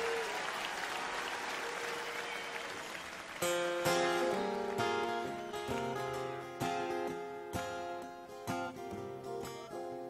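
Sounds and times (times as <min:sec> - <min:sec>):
audience applause: 0:00.0 - 0:05.2
acoustic guitar strums: 0:03.4 - 0:10.0.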